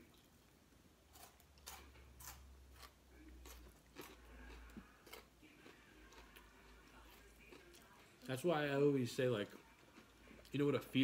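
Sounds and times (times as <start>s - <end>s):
people chewing with mouth smacks: 1.6s - 8.4s, 9.4s - 10.7s.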